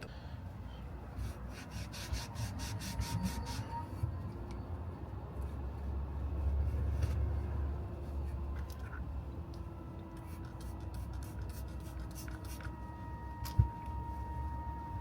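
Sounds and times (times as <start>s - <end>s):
rubbing and scratching on shaft: 1.2s - 3.8s, 10.1s - 12.7s.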